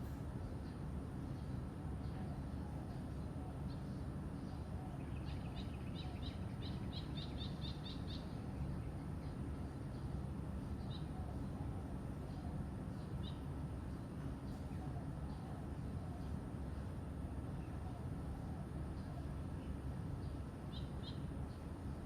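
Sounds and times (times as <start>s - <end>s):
songbird chirping: 0.4s - 10.1s.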